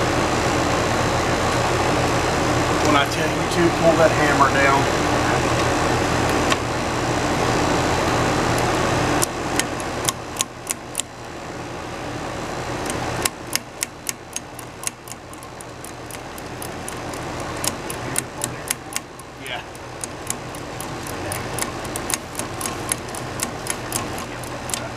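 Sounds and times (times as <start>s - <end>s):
condensing unit humming: 0.0s - 24.9s
wrench clicking on valve: 12.8s - 24.9s.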